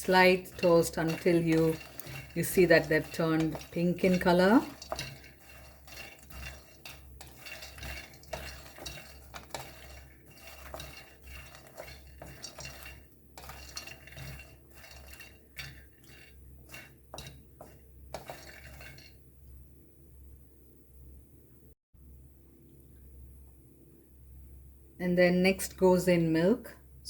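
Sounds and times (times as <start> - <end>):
utensil scraping and knocking pan: 0.0 - 19.2.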